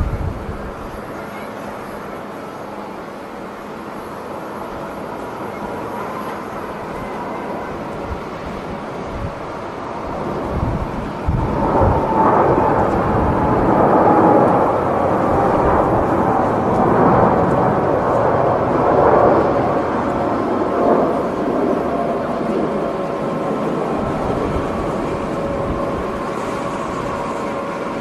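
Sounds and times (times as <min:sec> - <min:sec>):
wind buffeting microphone: 0:00.0 - 0:01.0, 0:07.0 - 0:28.0
jet airliner engines: 0:00.0 - 0:28.0.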